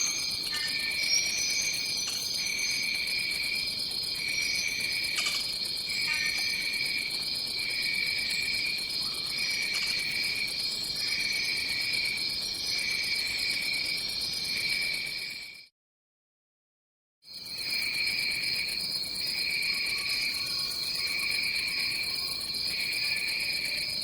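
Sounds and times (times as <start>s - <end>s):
high-pitched insect drone: 0.0s - 7.1s
lower insect trill: 0.0s - 15.5s, 17.3s - 24.0s.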